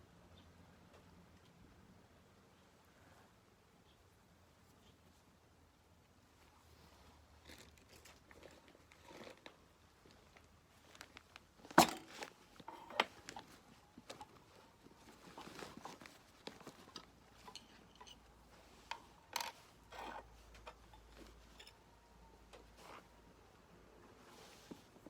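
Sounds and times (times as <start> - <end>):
tea utensils clinking and knocking: 17.4 - 18.2.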